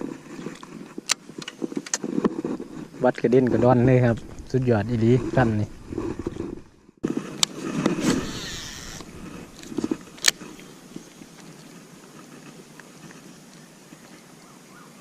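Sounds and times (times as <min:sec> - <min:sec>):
line whirring off reel: 0:07.6 - 0:11.0.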